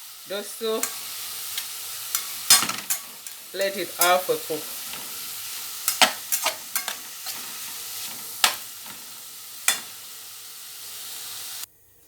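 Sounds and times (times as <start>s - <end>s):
vegetables sizzling in a frying pan: 0.0s - 12.0s
utensil striking a pan: 0.8s - 10.2s.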